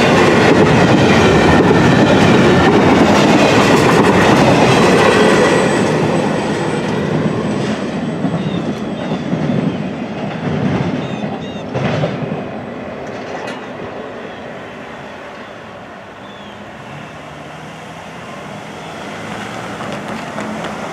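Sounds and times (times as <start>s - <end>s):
train wheels clicking over rail joints: 0.1s - 13.9s, 19.2s - 20.9s.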